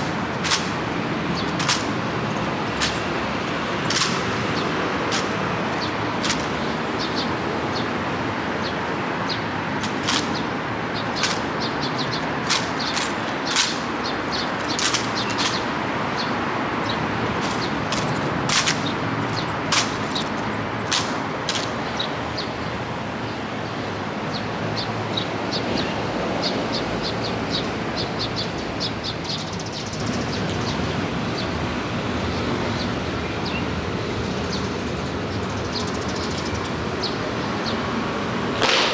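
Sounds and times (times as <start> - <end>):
sharp taps and clicks: 0.0 - 6.9, 9.8 - 22.1
rain hissing: 0.0 - 7.3, 9.8 - 16.1.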